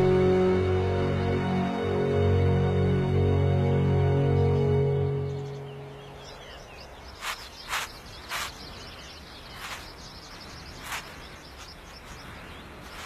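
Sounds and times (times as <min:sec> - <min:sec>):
small birds chirping: 0:04.4 - 0:13.0.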